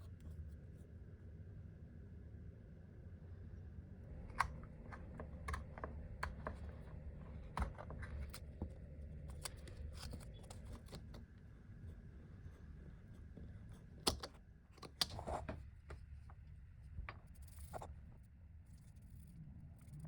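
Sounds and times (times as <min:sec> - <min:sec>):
steady low hum: 0:00.0 - 0:20.0
small clicks and taps: 0:04.1 - 0:11.4, 0:13.3 - 0:16.4.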